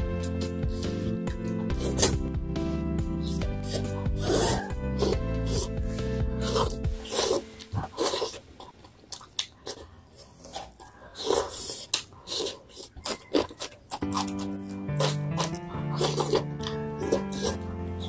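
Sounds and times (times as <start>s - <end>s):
background music: 0.0s - 8.4s, 13.9s - 18.0s
woman chewing food: 0.0s - 18.0s.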